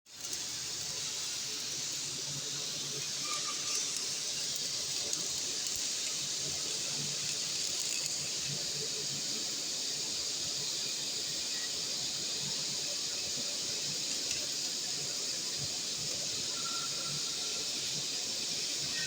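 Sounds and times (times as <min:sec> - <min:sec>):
faint welding crackles: 0:00.1 - 0:19.0
welding arc hissing: 0:00.1 - 0:19.0.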